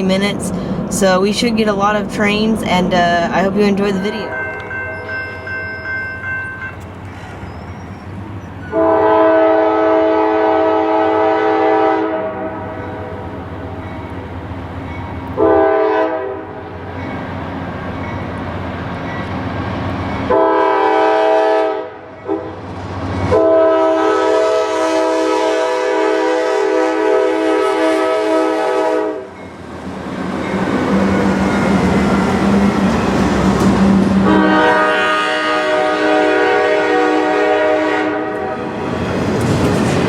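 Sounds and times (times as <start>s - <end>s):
train rumble: 0.0s - 40.0s
locomotive air horn blasts: 8.7s - 12.8s, 15.4s - 16.6s, 20.3s - 22.6s, 23.3s - 29.3s, 34.2s - 38.7s.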